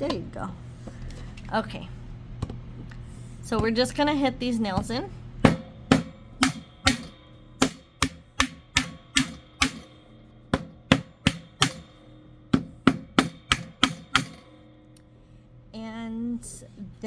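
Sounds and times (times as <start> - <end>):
hammer tapping nails into wood: 12.6 - 14.4.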